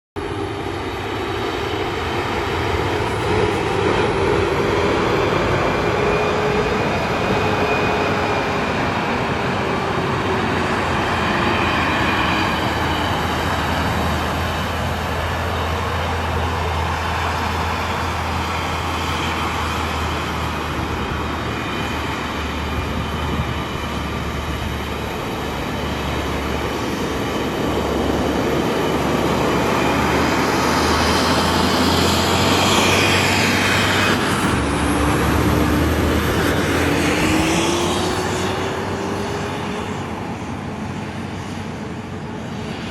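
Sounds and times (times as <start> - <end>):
road noise: 0.2 - 42.9
dump truck engine: 1.1 - 40.6.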